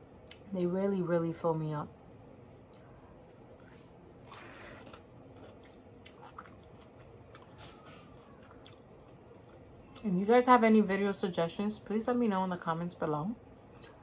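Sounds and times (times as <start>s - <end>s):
chewing soft noodles: 2.6s - 10.0s.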